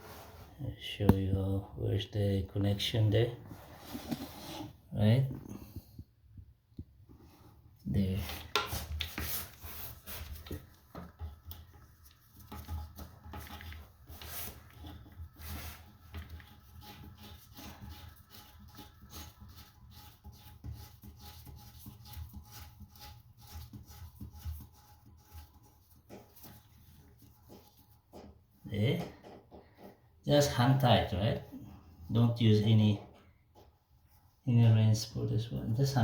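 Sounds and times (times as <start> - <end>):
hands tightening hose fittings: 8.3 - 30.0.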